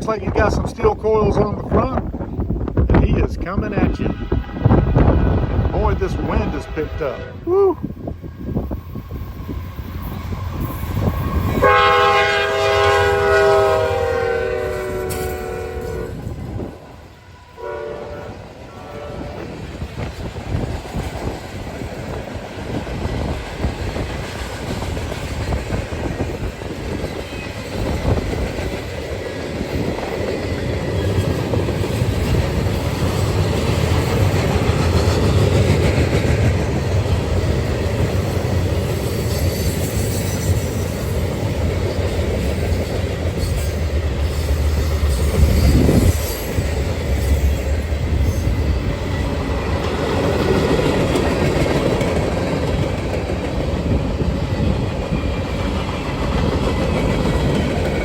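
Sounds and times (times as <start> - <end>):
wind buffeting microphone: 0.0 - 12.1, 12.7 - 17.2, 18.1 - 39.1, 40.5 - 58.0
train wheels clicking over rail joints: 19.4 - 58.0.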